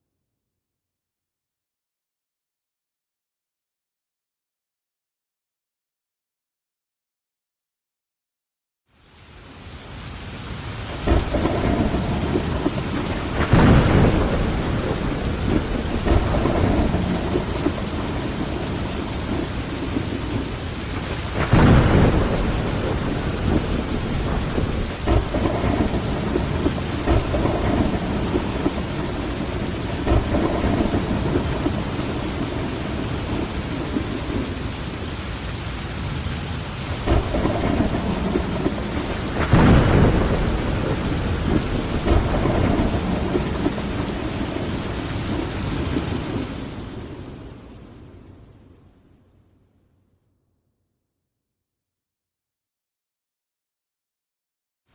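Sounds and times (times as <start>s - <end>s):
rain against a window: 8.9s - 48.9s
thunder rumbling: 10.1s - 48.9s.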